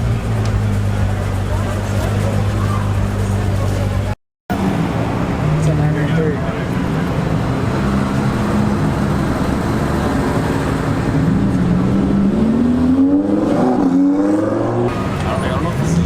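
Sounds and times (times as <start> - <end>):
sports car engine accelerating: 0.0 - 16.0.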